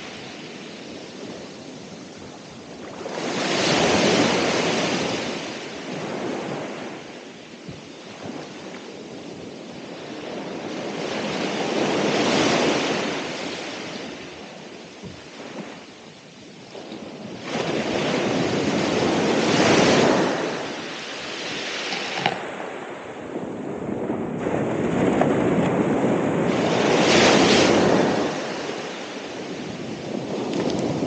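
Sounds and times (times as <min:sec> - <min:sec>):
ocean waves breaking on shore: 0:00.0 - 0:31.0.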